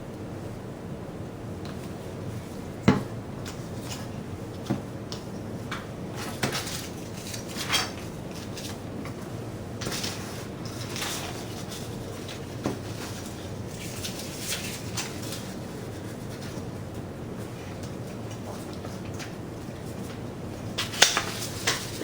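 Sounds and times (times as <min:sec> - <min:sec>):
paper handling: 0:06.2 - 0:17.0, 0:17.6 - 0:22.0.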